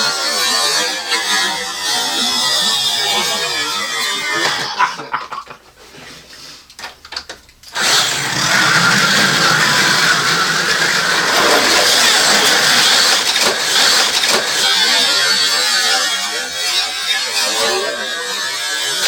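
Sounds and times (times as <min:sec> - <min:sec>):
cars clattering over plastic track: 0:06.8 - 0:15.5
slot car motors whining: 0:07.8 - 0:19.0.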